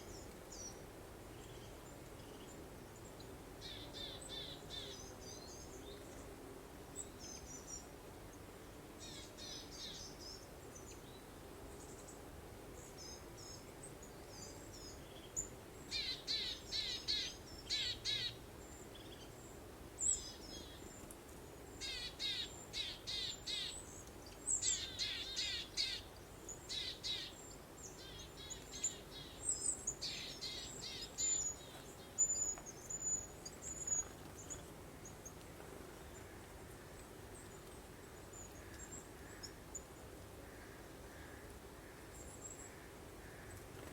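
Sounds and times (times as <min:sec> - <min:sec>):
faint steady breeze: 0:00.0 - 0:43.9
songbirds singing and chirping: 0:21.8 - 0:35.4.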